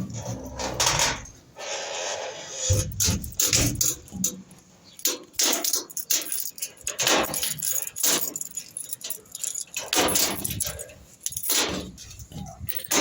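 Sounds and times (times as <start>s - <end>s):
keys and lock parts clinking: 2.7s - 13.0s.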